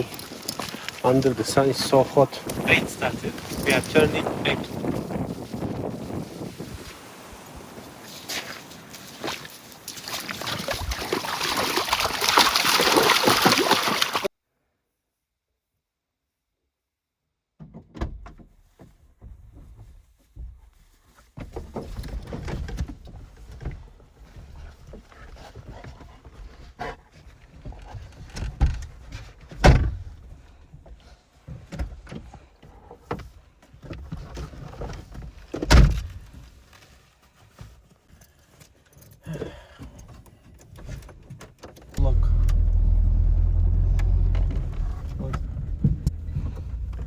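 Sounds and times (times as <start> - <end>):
low rumble: 42.0 - 47.0
knocks and thumps: 44.0 - 47.0.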